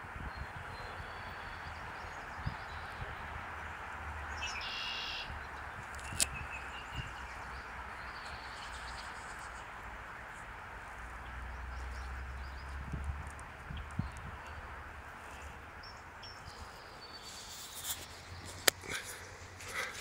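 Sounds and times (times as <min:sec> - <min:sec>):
outdoor background hiss: 0:00.0 - 0:20.0
bird calling: 0:04.3 - 0:09.8.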